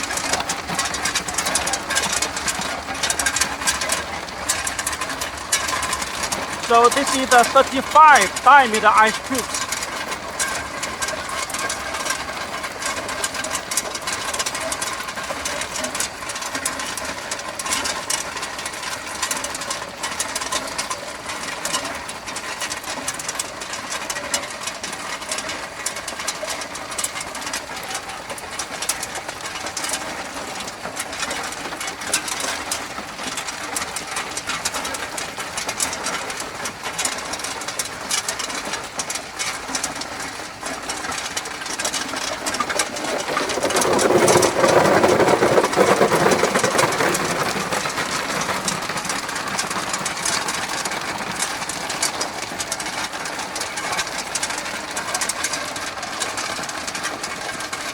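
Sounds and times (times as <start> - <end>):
ice tubes clattering: 41.6 - 50.6.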